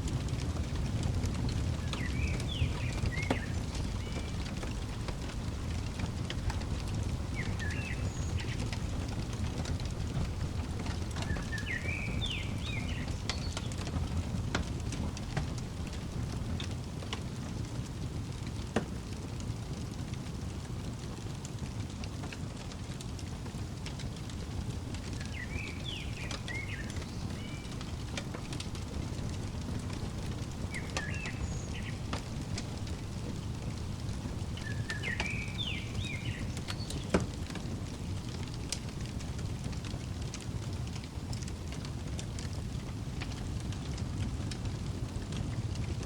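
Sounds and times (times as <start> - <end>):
fireplace crackling: 0.0 - 46.0
sharp pops from fire: 0.0 - 46.0
songbird chirping: 1.4 - 16.3, 24.2 - 39.2.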